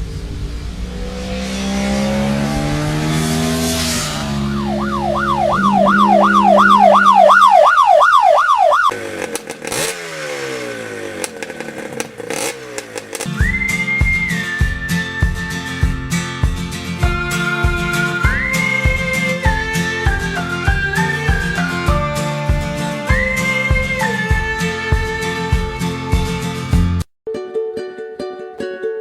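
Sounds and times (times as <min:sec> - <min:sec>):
vehicle engine revving: 0:00.0 - 0:27.1
siren-like wail: 0:02.0 - 0:09.0.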